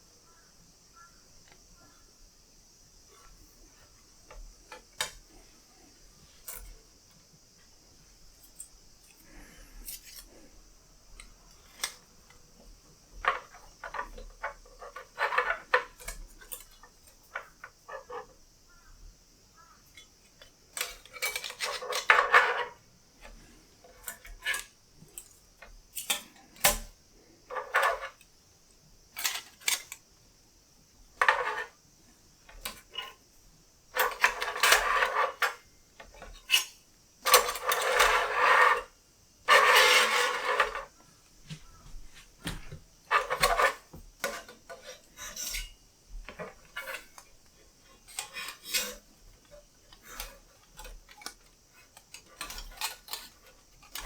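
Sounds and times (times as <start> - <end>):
metal parts clattering and scraping: 13.2 - 16.7, 20.8 - 22.8, 27.5 - 28.2, 31.2 - 31.7, 34.0 - 35.6, 36.2 - 38.9, 39.5 - 40.9, 43.1 - 45.7, 48.0 - 49.1, 50.1 - 54.0.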